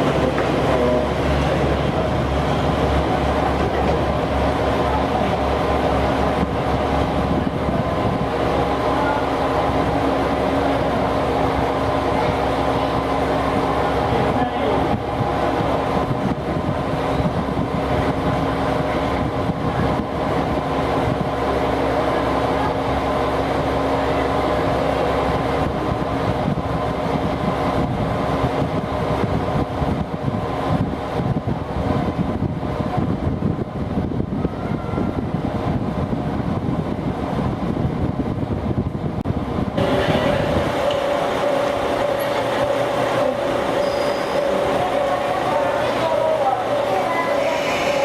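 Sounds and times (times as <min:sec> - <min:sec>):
diesel railcar engine hum: 0:00.0 - 0:48.0
held engine tones: 0:39.8 - 0:48.0.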